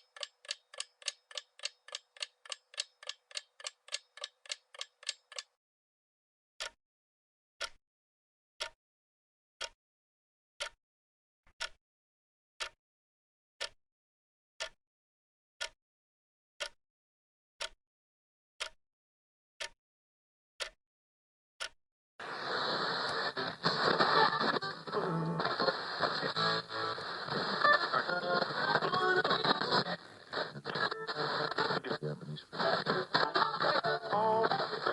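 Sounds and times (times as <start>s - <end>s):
clock ticking: 0.0s - 5.6s.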